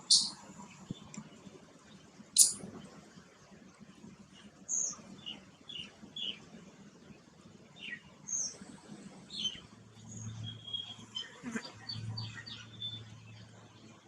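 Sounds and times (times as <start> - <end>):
small birds chirping: 0.0 - 2.7, 7.8 - 14.0.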